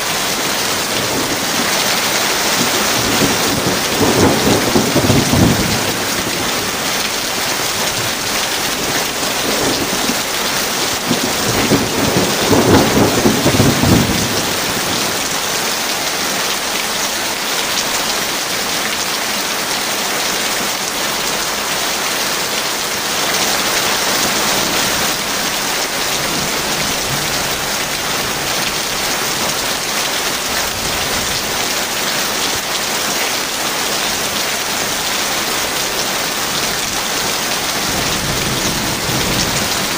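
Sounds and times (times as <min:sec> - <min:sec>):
heavy rain: 0:00.0 - 0:39.9
thunder rumbling: 0:00.4 - 0:15.4, 0:37.3 - 0:39.9.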